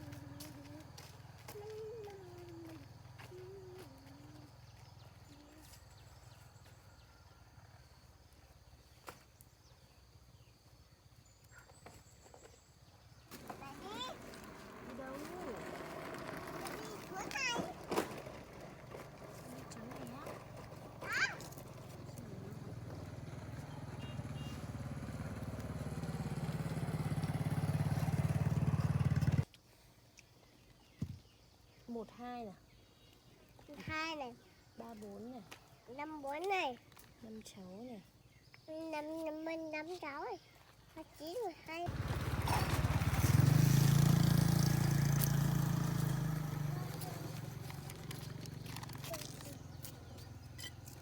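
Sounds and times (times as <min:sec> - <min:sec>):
motorbike engine running: 0:13.4 - 0:17.8, 0:18.4 - 0:29.4, 0:41.9 - 0:51.0.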